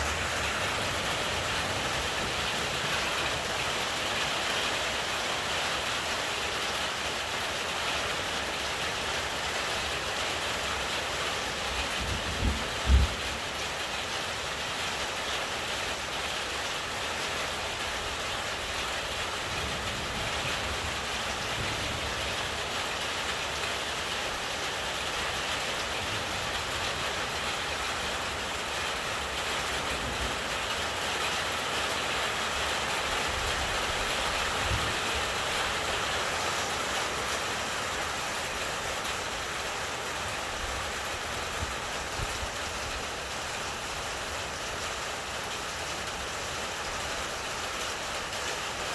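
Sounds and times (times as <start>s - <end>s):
rain falling steadily: 0.0s - 48.9s
low thunder rumbles: 11.8s - 13.6s.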